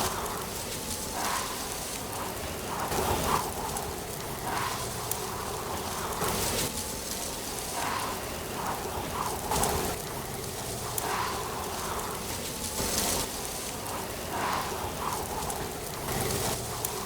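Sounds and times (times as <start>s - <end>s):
wind gusts: 0.0s - 17.0s.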